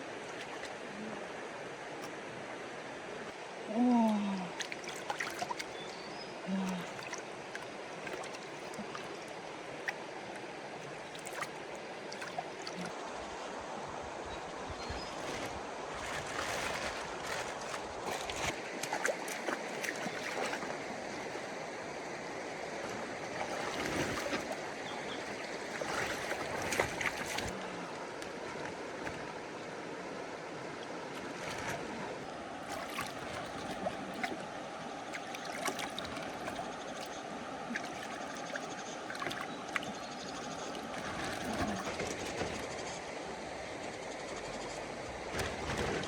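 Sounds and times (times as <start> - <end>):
water rushing and sloshing: 0.0 - 46.0
small splashes and knocks: 0.3 - 0.8, 4.1 - 13.0, 14.9 - 21.6, 22.8 - 29.4, 31.1 - 34.5, 35.1 - 42.8, 45.3 - 46.0.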